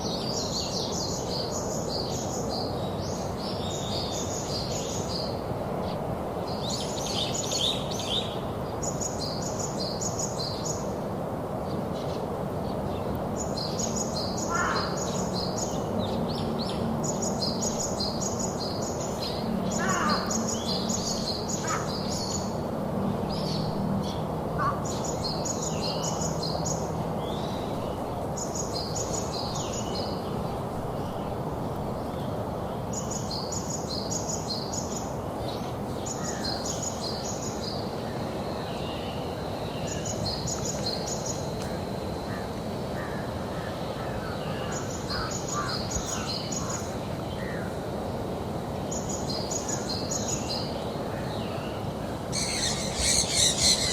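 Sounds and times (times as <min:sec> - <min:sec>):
background hiss: 0:00.0 - 0:53.9
birds chirping: 0:52.2 - 0:53.9.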